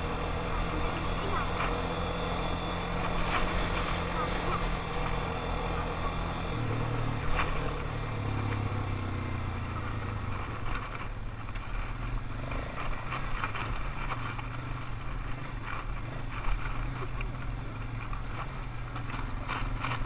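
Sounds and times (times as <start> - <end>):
atv engine running: 0.0 - 20.0
knocks and rattles over bumps: 9.7 - 20.0.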